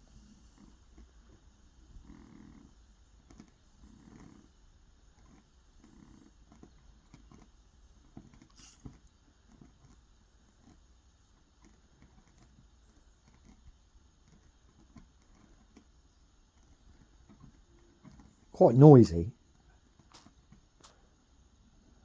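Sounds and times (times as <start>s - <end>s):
faint small ticks and clicks: 0.6s - 18.5s, 19.4s - 22.0s.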